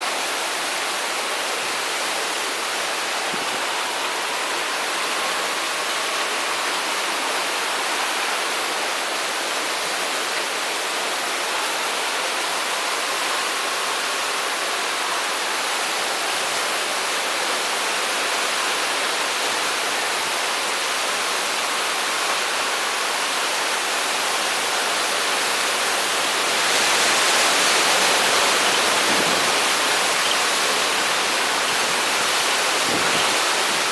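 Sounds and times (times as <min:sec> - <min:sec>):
strong wind and heavy rain: 0:00.0 - 0:33.9
faint wavering wind whistle: 0:26.0 - 0:33.9.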